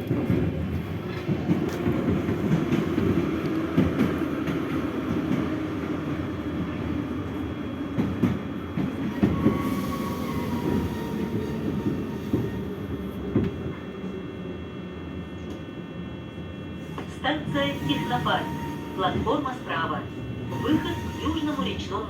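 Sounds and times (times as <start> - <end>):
subway train rumble: 0.0 - 22.0
faint thin squeal: 20.5 - 21.8.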